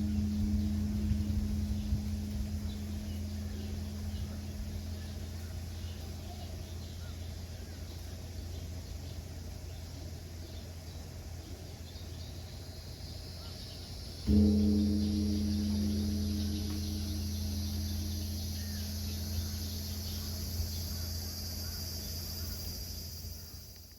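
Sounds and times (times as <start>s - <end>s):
deep hum of struck temple bell: 0.0s - 8.7s, 14.3s - 23.4s
birds: 0.0s - 23.9s
insects: 0.0s - 23.9s.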